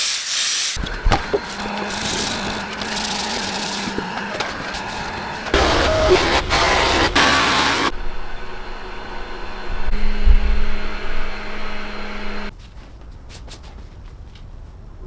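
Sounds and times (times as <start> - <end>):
loud rushing noise: 0.8 - 11.5
lathe motor humming: 0.8 - 12.5.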